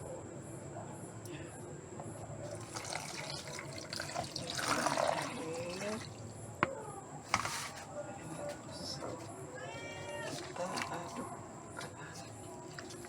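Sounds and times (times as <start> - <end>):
water pouring into container: 2.5 - 6.3.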